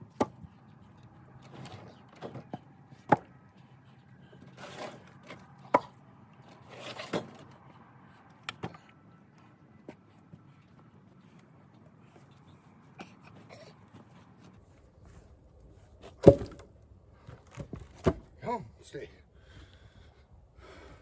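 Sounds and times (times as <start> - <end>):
wood rustling and scraping: 0.1 - 8.8
firewood knocking on pile: 1.5 - 3.3, 4.7 - 6.0, 16.2 - 16.7.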